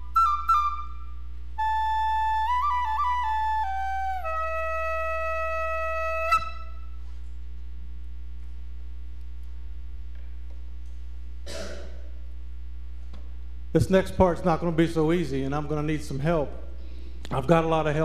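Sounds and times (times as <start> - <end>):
flute playing: 0.0 - 7.0
steady electrical hum: 0.0 - 18.0.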